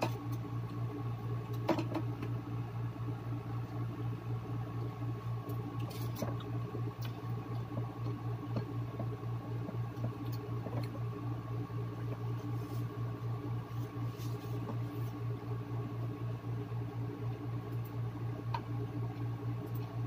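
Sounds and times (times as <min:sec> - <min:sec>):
steady low hum: 0:00.0 - 0:20.0
chewing food: 0:05.5 - 0:09.1.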